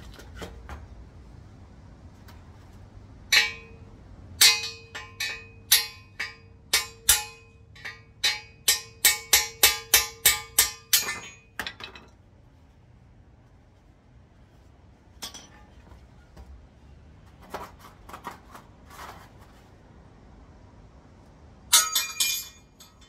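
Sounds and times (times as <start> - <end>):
hammer tapping on metal: 3.3 - 12.0.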